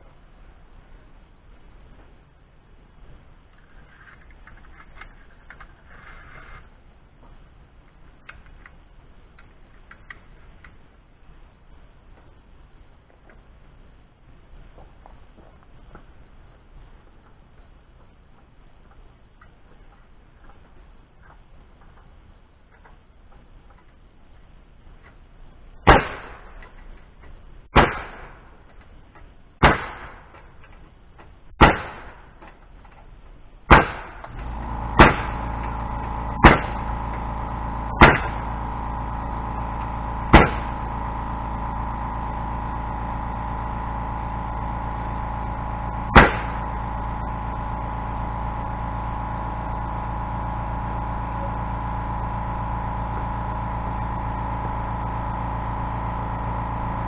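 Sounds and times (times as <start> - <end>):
steady machine hum: 33.8 - 57.0.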